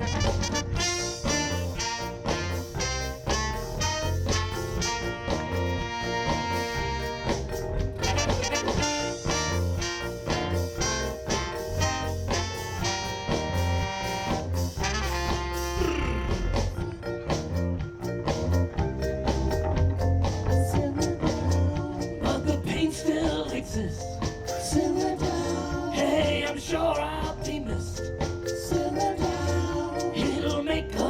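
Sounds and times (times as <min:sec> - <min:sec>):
horn section playing: 0:00.0 - 0:17.0
drums and bass beat: 0:00.0 - 0:31.0.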